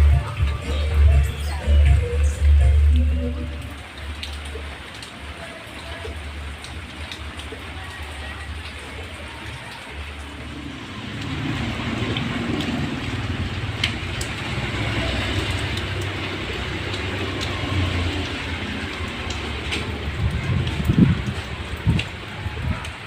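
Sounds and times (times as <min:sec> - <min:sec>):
rain falling: 0:00.0 - 0:23.0
sharp raindrop ticks: 0:00.0 - 0:23.0
strong wind gusting: 0:19.9 - 0:23.0.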